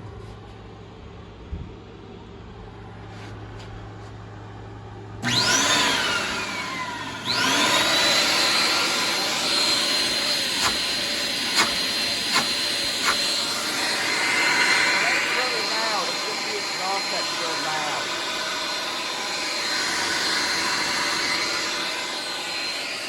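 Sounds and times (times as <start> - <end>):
central vacuum unit whining: 0.0 - 23.0
rush of exhaust air: 11.4 - 23.0.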